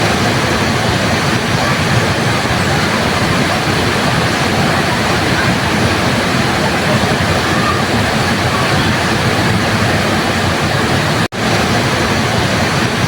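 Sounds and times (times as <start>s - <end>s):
waterfall pouring: 0.0s - 13.0s.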